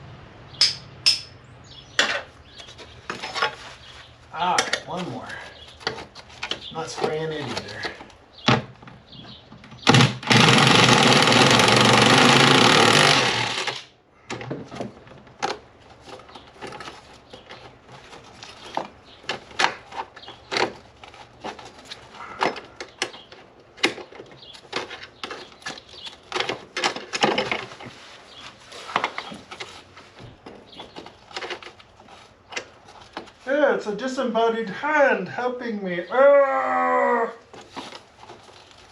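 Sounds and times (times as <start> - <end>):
impact wrench hammering: 0.6 - 1.4.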